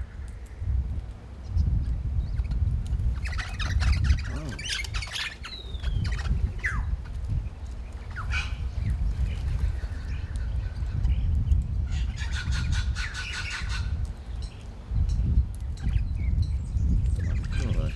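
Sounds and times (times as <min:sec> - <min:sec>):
birds squawking harshly: 0:03.0 - 0:07.2, 0:07.9 - 0:11.2, 0:11.9 - 0:14.4, 0:17.2 - 0:17.9.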